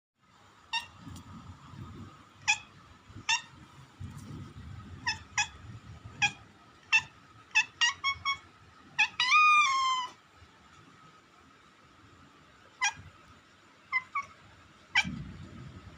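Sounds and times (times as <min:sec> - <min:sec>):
faint low rumble: 0:00.2 - 0:09.3, 0:10.2 - 0:15.9
cat mewing: 0:02.4 - 0:03.6, 0:05.0 - 0:08.4, 0:09.0 - 0:10.2, 0:12.8 - 0:13.1, 0:13.9 - 0:15.4.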